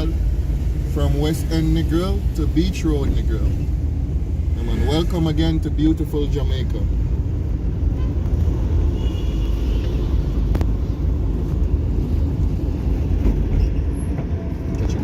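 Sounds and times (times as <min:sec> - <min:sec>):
vehicle engine and tyre rumble: 0:00.0 - 0:15.0.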